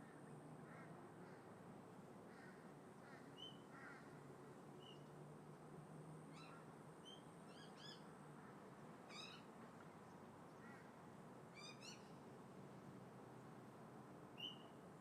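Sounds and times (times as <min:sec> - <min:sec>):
wind: 0:00.0 - 0:15.0.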